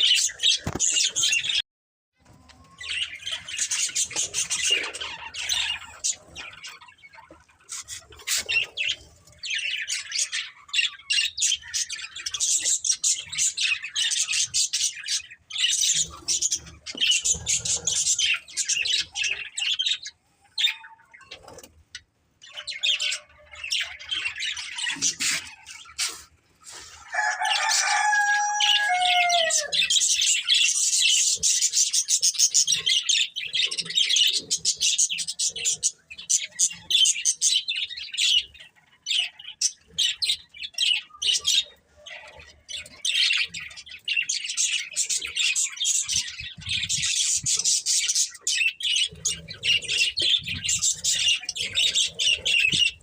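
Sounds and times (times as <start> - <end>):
budgerigars chattering: 28.4 - 53.0.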